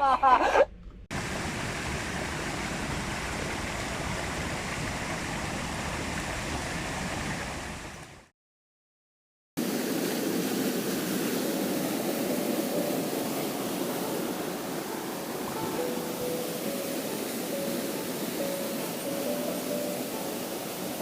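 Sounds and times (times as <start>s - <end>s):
stream water rushing: 1.1s - 8.3s, 9.6s - 21.0s.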